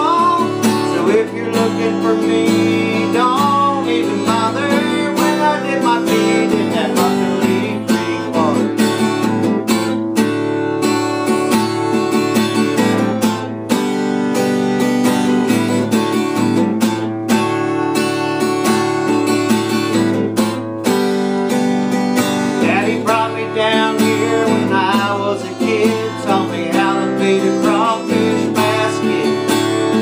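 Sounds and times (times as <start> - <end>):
acoustic guitar strumming: 0.0 - 30.0.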